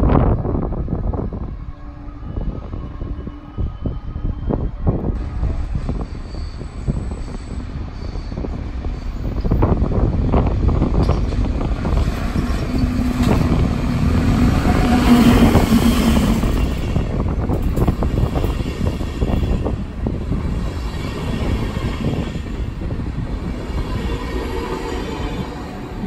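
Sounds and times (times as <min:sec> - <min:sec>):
electric locomotive humming: 0:00.0 - 0:26.0
train coaches rumbling: 0:00.0 - 0:26.0
clacking train wheels: 0:05.8 - 0:26.0.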